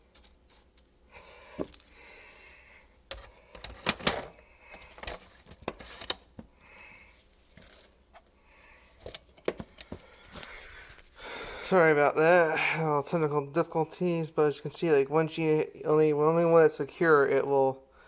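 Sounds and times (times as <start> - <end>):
small hard parts clicking and rattling: 3.1 - 6.9.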